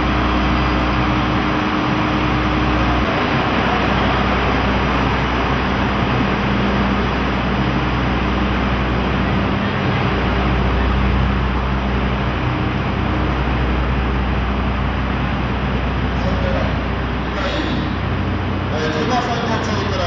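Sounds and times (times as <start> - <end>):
low hum: 0.0 - 20.0
train coaches rolling slowly: 0.0 - 20.0.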